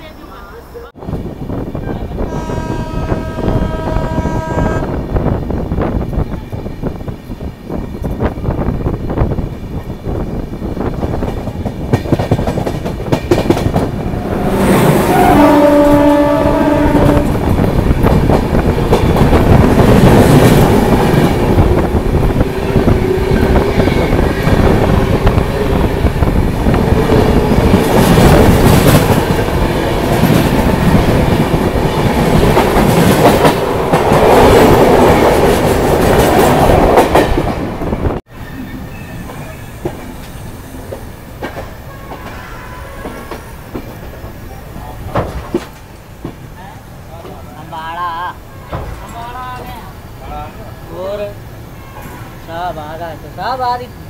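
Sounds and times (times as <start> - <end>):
steady rail noise: 0.0 - 54.0
train horn: 2.2 - 5.1, 14.2 - 17.4, 41.8 - 43.5, 51.7 - 52.4
train wheels clickety-clack: 9.7 - 14.1, 16.8 - 38.0, 39.3 - 44.4, 45.0 - 46.6.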